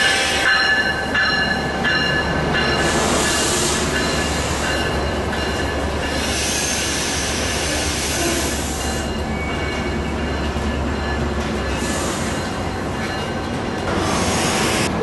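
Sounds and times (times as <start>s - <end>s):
train rumbling: 0.0s - 15.0s
train brakes squealing: 2.6s - 10.5s, 11.6s - 15.0s.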